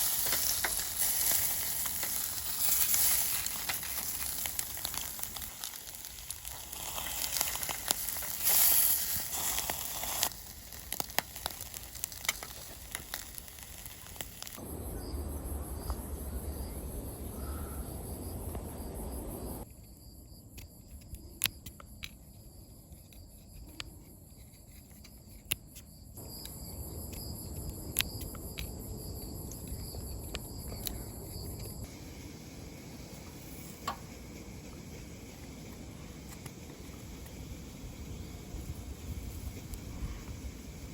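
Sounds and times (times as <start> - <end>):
food sizzling in a pan: 0.0 - 14.6.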